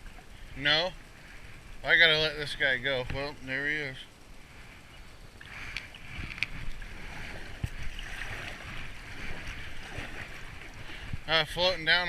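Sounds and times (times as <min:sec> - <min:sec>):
water rushing and splashing: 0:05.4 - 0:11.9
wind rumble on microphone: 0:05.4 - 0:12.0.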